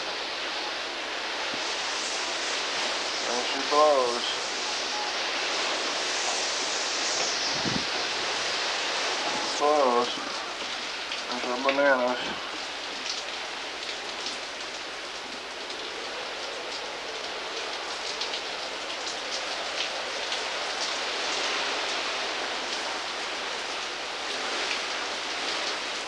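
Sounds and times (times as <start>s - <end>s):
strong wind: 0.0s - 11.4s
driving rain: 0.0s - 26.0s.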